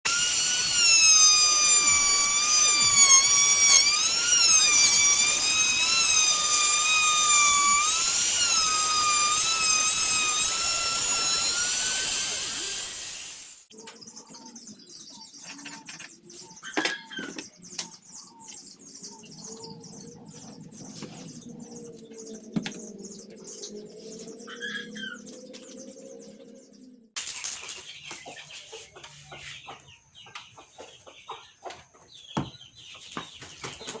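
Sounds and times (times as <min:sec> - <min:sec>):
electric saw motor whining: 0:00.1 - 0:13.7.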